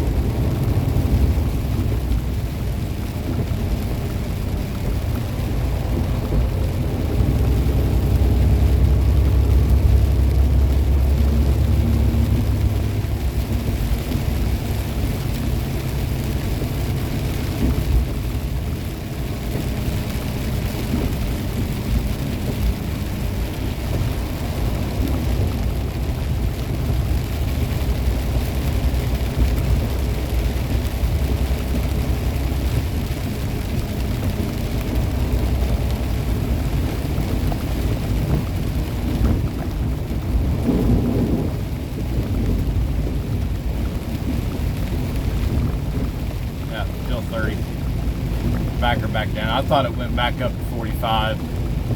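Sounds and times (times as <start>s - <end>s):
diesel engine drone: 0.0s - 51.9s
rain hiss: 0.0s - 51.9s
tyres on wet road: 0.0s - 51.9s.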